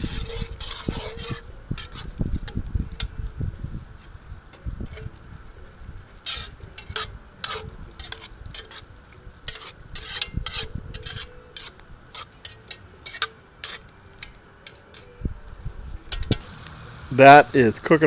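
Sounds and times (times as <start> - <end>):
sauce sizzling: 16.3 - 18.0.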